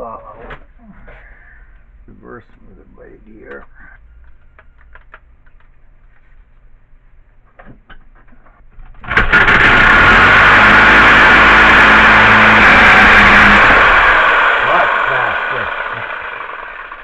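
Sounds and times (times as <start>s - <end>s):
reciprocating saw cutting metal: 9.3s - 17.0s.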